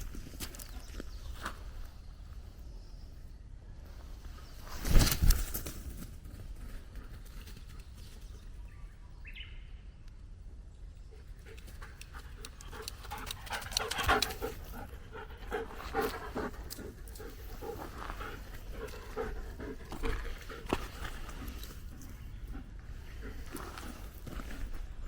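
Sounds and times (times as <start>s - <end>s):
dog panting: 11.2s - 24.7s.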